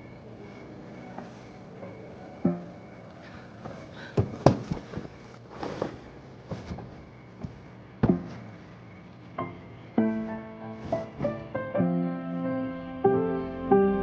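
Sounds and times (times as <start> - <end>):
soft rustling: 3.6 - 9.3, 10.0 - 11.5
sharp knocks and thuds: 4.2 - 8.6.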